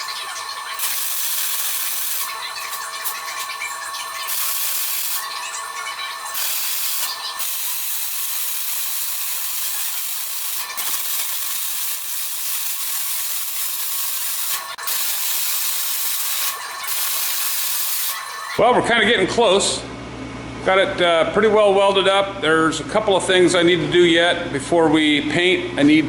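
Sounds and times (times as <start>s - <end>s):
welding arc crackling hiss: 0.0s - 18.6s.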